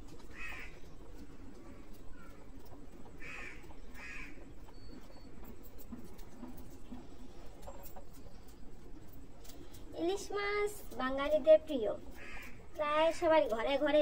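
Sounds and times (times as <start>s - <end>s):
low steady background rumble: 0.0s - 14.0s
bird calls: 3.1s - 5.5s.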